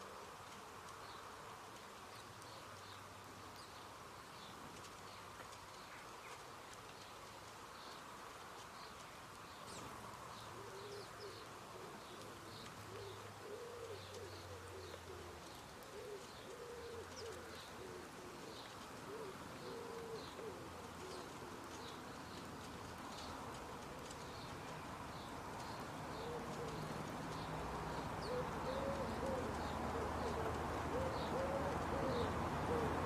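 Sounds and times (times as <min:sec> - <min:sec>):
small birds chirping: 0:00.0 - 0:33.0
bird cooing: 0:10.4 - 0:22.0, 0:26.1 - 0:33.0.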